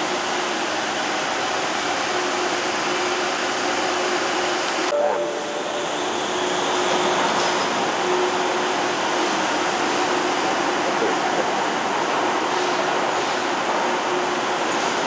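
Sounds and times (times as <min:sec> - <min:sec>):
tram rumble and hum: 0:00.0 - 0:15.0
brief higher tone: 0:04.9 - 0:07.0.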